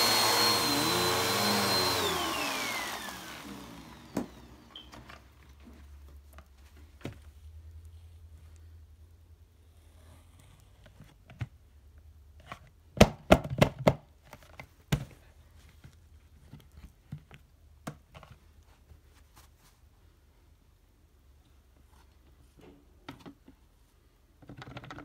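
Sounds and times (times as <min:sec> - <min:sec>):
vacuum cleaner handling knocks: 0:04.0 - 0:04.4.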